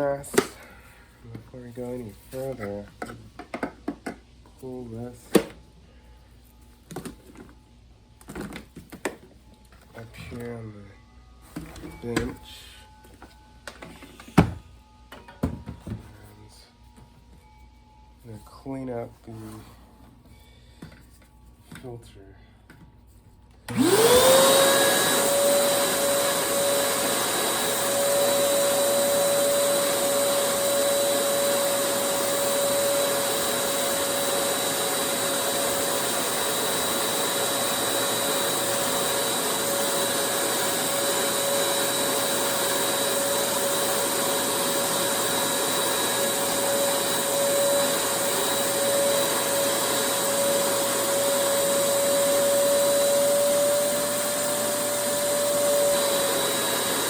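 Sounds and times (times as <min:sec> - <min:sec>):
vacuum cleaner motor whine: 0:23.7 - 0:57.0.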